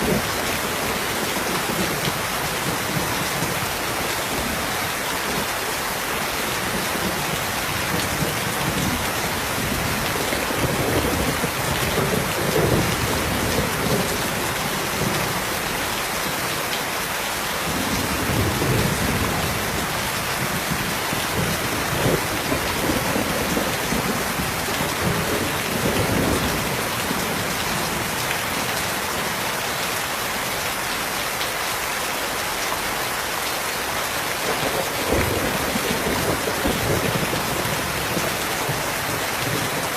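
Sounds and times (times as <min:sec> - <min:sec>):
heavy rain: 0:00.0 - 0:39.9
low thunder rumbling: 0:06.6 - 0:15.5, 0:17.7 - 0:28.6, 0:34.5 - 0:39.9.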